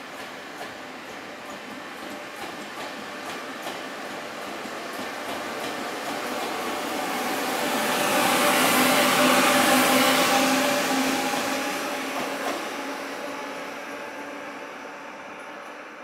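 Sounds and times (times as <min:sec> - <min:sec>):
train passing: 0:00.0 - 0:16.0.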